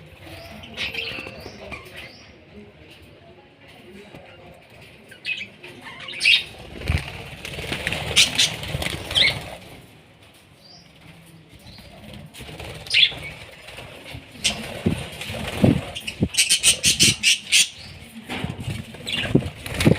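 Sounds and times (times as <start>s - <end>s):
wings flapping: 6.3s - 9.9s, 11.8s - 19.9s
budgerigars chirping: 16.0s - 17.9s.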